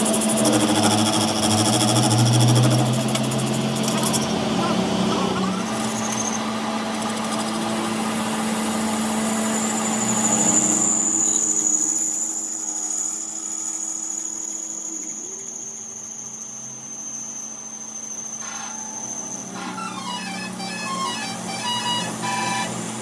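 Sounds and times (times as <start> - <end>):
tractor engine running: 0.0 - 10.5.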